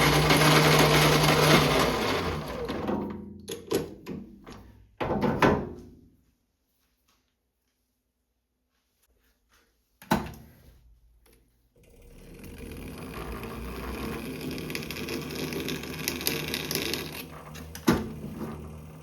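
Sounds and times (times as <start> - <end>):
machine motor rattling: 11.8 - 19.0.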